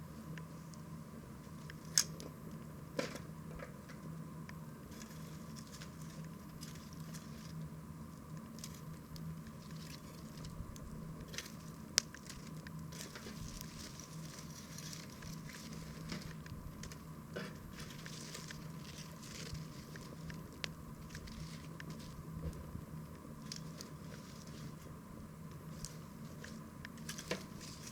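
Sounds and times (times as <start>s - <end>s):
campfire crackling and popping: 8.3s - 13.7s.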